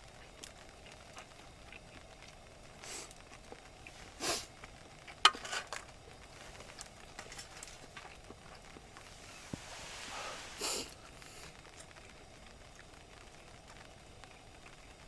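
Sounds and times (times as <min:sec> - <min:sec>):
small clicks and crackles: 0:00.0 - 0:15.0.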